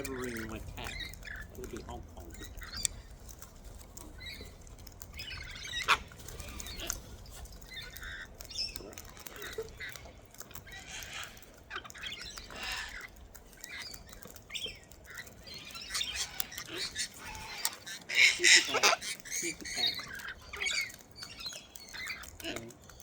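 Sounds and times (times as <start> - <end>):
birds crunching and pecking: 0.0 - 23.0.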